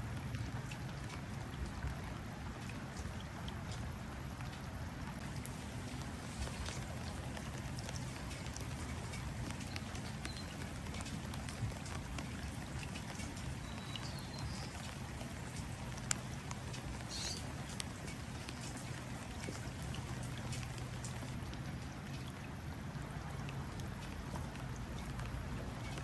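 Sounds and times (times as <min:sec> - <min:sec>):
rain falling into water: 0:00.0 - 0:26.0
faint bird chirps: 0:17.0 - 0:17.5.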